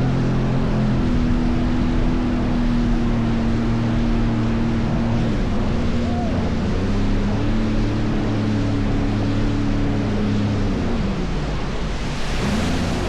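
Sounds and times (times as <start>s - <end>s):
jet ski engine running: 0.0s - 13.0s
rushing water: 7.8s - 13.0s
wind noise: 10.8s - 13.0s.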